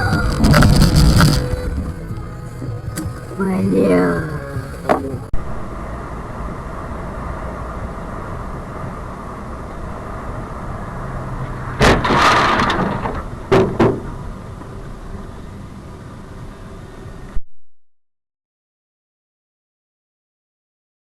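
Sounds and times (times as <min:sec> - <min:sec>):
car crash: 0:00.0 - 0:03.4, 0:04.7 - 0:17.3
car engine and road rumble: 0:00.0 - 0:17.4
sharp knocks: 0:11.8 - 0:14.3.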